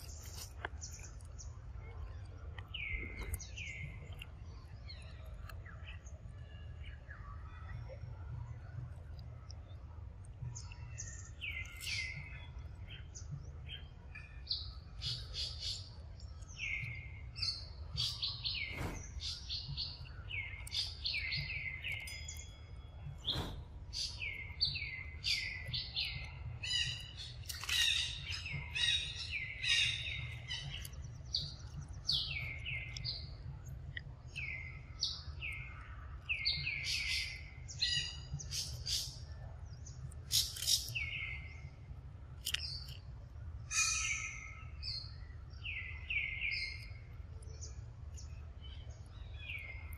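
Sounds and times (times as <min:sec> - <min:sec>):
low background rumble: 0:00.0 - 0:36.8
birds chirping: 0:00.0 - 0:49.9.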